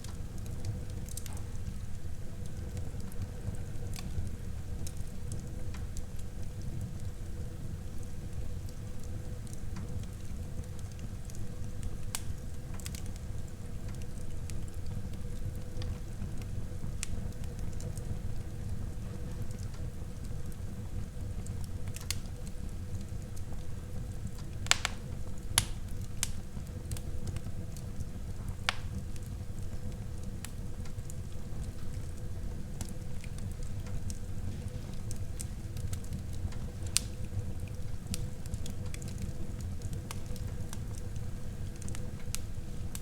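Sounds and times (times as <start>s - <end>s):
wood crackling and popping: 0.0s - 43.0s
fire flames rushing: 20.4s - 43.0s.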